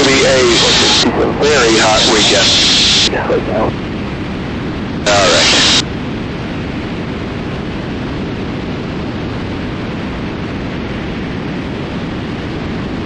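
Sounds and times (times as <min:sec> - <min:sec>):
airflow rushing: 0:00.0 - 0:03.9
aircraft engine drone: 0:00.0 - 0:13.0.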